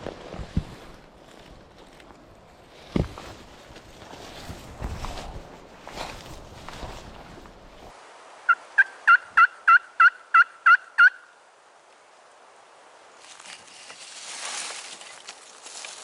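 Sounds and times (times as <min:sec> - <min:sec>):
turkey call yelps: 0:08.5 - 0:11.4.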